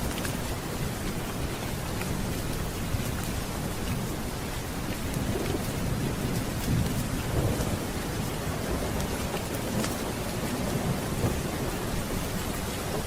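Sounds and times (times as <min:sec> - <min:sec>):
heavy rain: 0:00.0 - 0:13.0
rolling thunder: 0:05.1 - 0:12.3.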